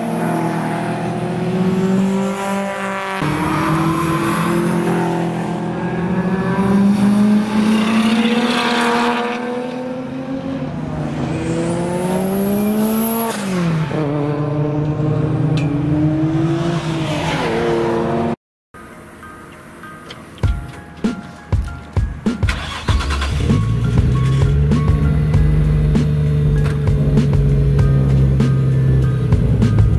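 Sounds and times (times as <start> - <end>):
car engine under load: 18.8 - 29.9.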